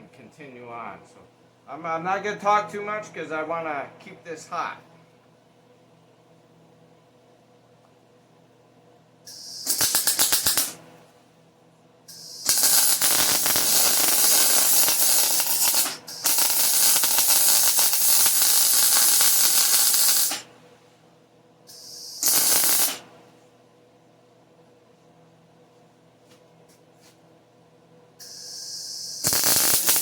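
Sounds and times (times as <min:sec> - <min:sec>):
arc welding crackle: 0:09.3 - 0:10.8, 0:12.1 - 0:20.5, 0:21.7 - 0:23.1, 0:28.2 - 0:30.0
short hiss: 0:09.3 - 0:10.8, 0:21.7 - 0:23.1, 0:28.2 - 0:30.0.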